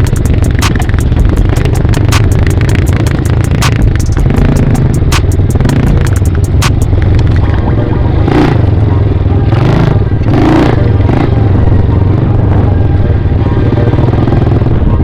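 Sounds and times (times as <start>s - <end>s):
dirt bike engine running: 0.0s - 15.0s
rushing noise and rattle: 0.0s - 15.0s.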